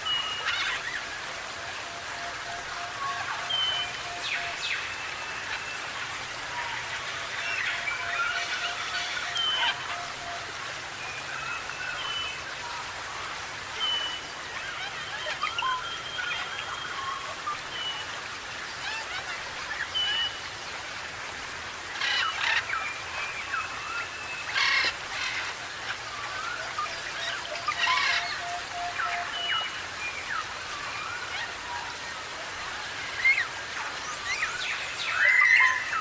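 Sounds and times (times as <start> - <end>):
birds whistling and warbling: 3.1 - 10.2, 22.0 - 31.9.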